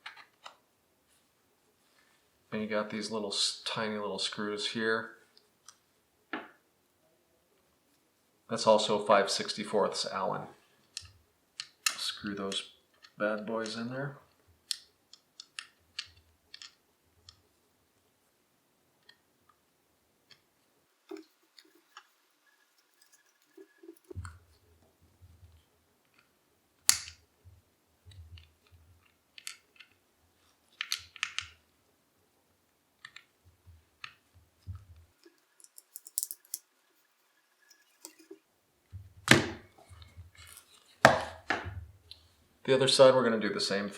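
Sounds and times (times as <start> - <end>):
small wrench and screw clicks: 35.4 - 36.7.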